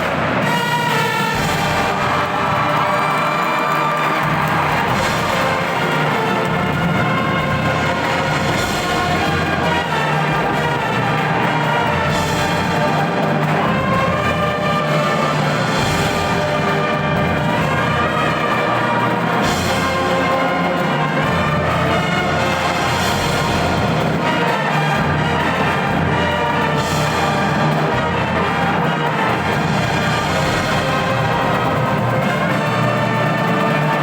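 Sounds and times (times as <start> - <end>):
marching band brass and percussion: 0.0 - 34.0.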